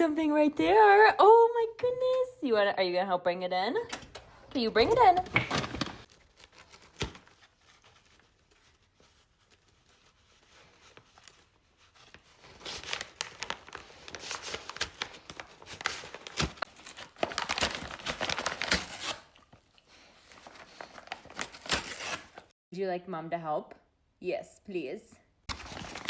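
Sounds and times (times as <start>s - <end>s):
packaging crinkling and tearing: 4.9s - 22.5s, 25.5s - 26.0s.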